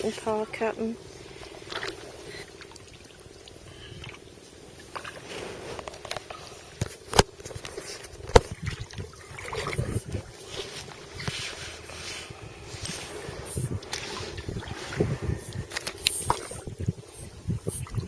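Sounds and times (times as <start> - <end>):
paddle splashing in water: 1.3 - 6.5, 7.8 - 16.7.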